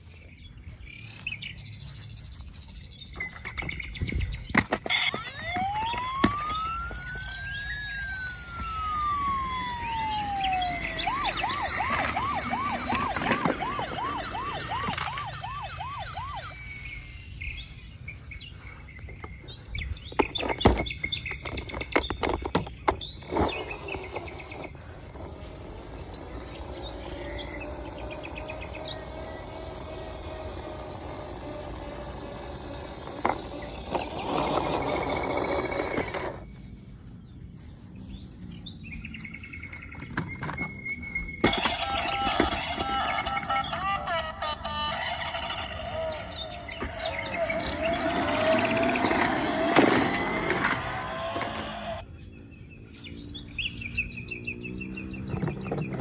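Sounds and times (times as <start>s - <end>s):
toy siren wailing and yelping: 4.6s - 17.4s, 23.2s - 36.4s, 41.4s - 52.0s.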